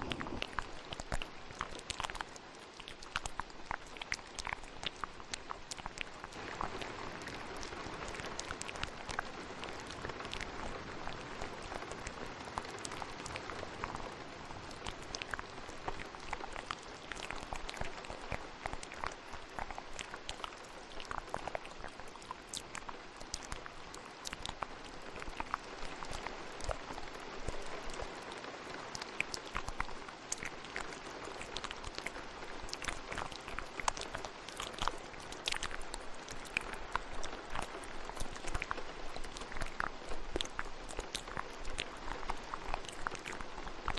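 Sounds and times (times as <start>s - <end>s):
mouth clicks: 0.0s - 43.9s
steady rain: 0.0s - 43.9s.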